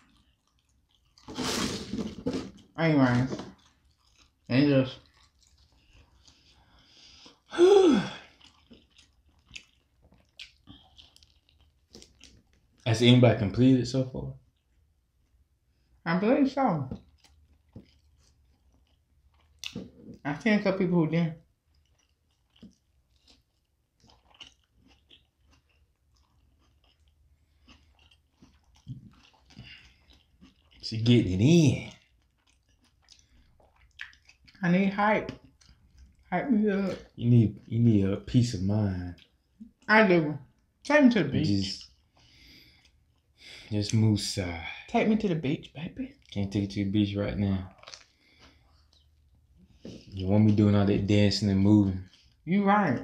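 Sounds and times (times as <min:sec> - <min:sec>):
person chewing open-mouthed: 0:00.0 - 0:12.9, 0:16.9 - 0:20.2, 0:21.5 - 0:31.1, 0:31.7 - 0:34.6, 0:35.2 - 0:36.3, 0:36.9 - 0:40.8, 0:41.4 - 0:44.1, 0:46.1 - 0:46.5, 0:47.5 - 0:50.6, 0:51.9 - 0:52.4.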